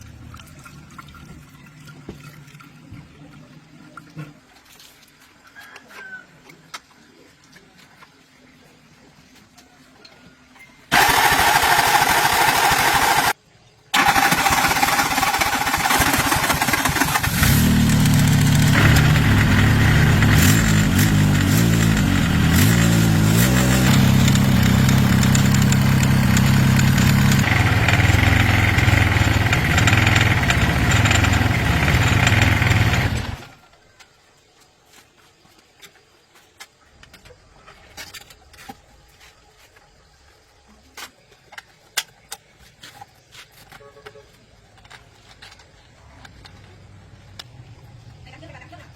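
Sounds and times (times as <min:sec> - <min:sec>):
engine cranking: 0:10.9 - 0:13.4, 0:14.0 - 0:33.6
engine running steadily: 0:14.0 - 0:33.5.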